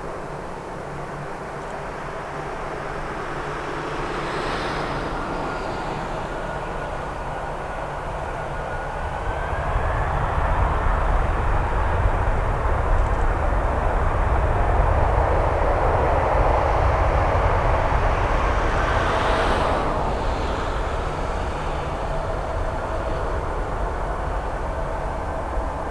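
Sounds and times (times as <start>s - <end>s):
jet engine whine: 0.0s - 25.9s
jet engines roaring: 1.8s - 25.9s.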